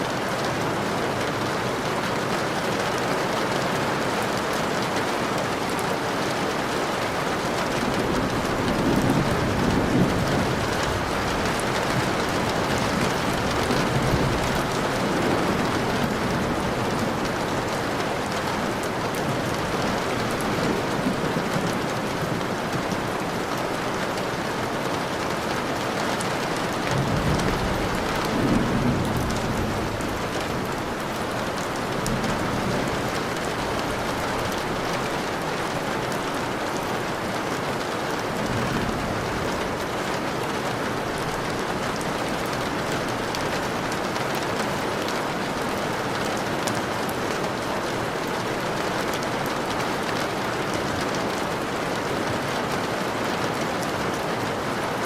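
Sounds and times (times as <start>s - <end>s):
steady rain falling: 0.0s - 55.0s
thunder rolling: 7.4s - 24.0s, 26.3s - 35.5s.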